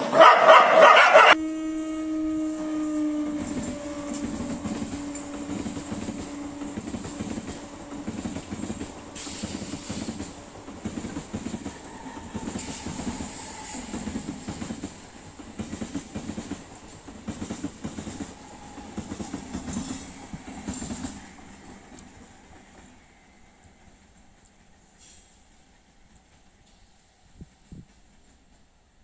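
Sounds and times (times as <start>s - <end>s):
train wheels clattering over rail joints: 3.4s - 22.9s.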